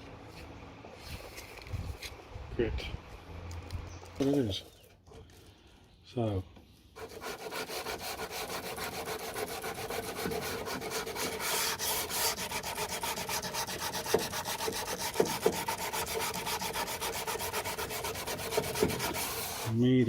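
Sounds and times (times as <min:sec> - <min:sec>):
hand sanding strokes: 0:07.0 - 0:20.0.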